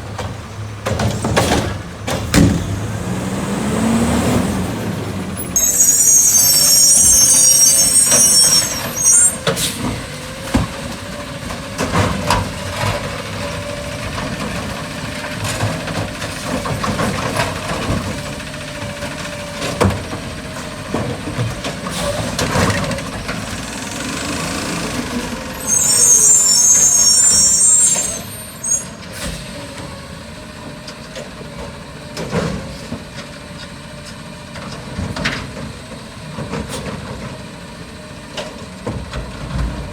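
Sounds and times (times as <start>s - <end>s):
garbage truck engine running: 0.0s - 39.9s
knocks and clanks: 0.1s - 3.0s
air brake hiss: 5.5s - 10.0s, 25.5s - 29.7s.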